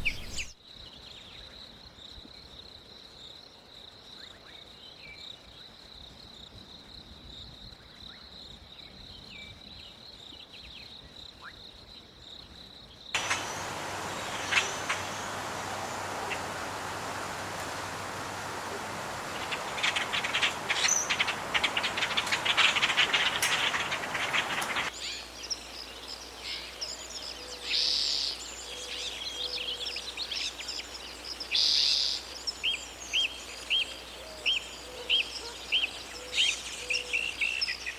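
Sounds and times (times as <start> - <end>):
birds chirping and calling: 0.0 - 0.5, 13.2 - 24.9
bird repeating upswept chirps: 13.2 - 24.9
steady rushing noise: 13.2 - 24.9.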